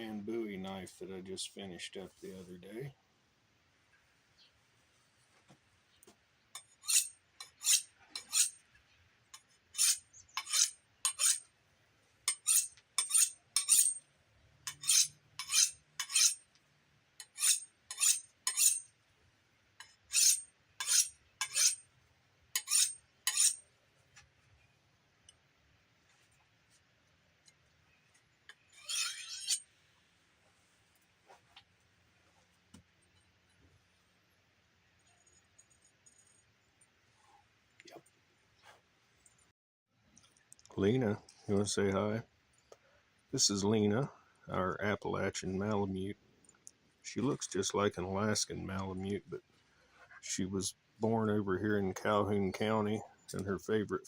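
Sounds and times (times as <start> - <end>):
knife scraping on sharpener: 6.6 - 8.6, 9.8 - 11.4, 12.3 - 14.0, 14.7 - 16.4, 17.2 - 18.8, 19.8 - 21.8, 22.6 - 23.6, 28.5 - 29.6.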